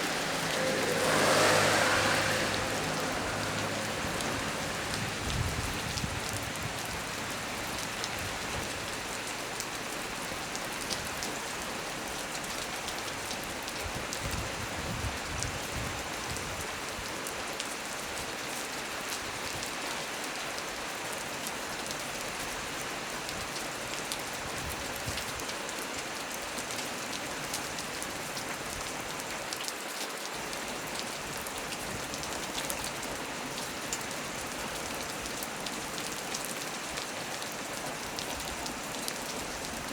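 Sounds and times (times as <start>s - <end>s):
raindrops ticking sharply: 0.0s - 13.7s
heavy rain on leaves: 0.0s - 39.9s.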